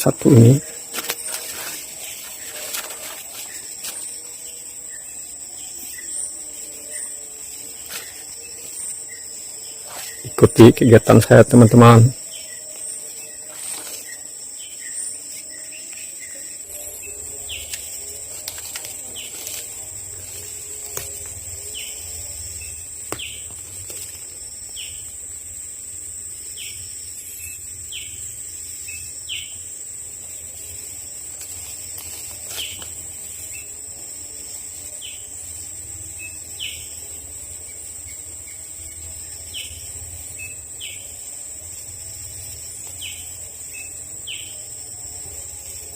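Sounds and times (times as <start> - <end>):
high insect drone: 0.0 - 45.9.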